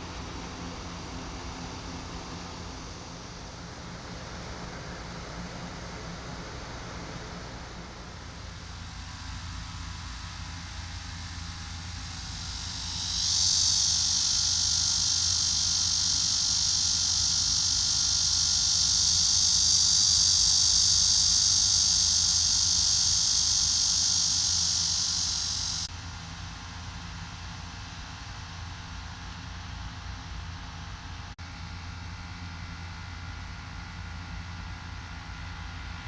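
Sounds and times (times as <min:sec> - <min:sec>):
cicadas buzzing: 0:00.0 - 0:09.4, 0:11.9 - 0:25.9
low steady rumble: 0:00.0 - 0:10.1.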